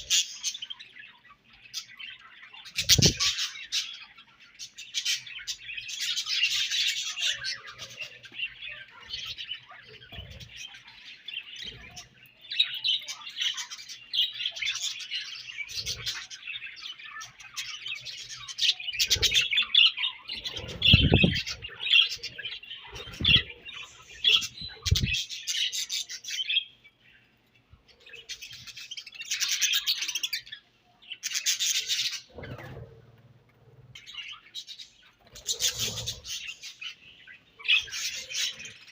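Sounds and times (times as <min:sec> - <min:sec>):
budgerigars chattering and chirping: 0:00.0 - 0:27.3, 0:27.9 - 0:32.8, 0:33.9 - 0:38.9.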